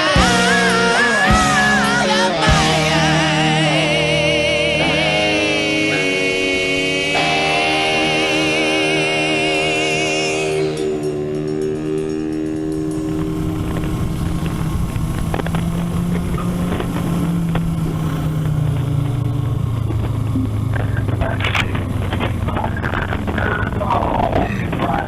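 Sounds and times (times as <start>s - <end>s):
motorcycle engine: 0.0s - 25.0s
wind noise on microphone: 10.7s - 25.0s.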